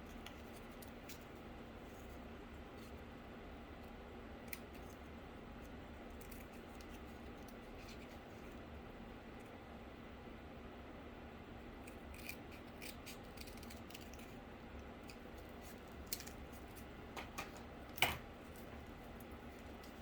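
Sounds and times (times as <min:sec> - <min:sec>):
scissors cutting cardboard: 0:11.8 - 0:14.4.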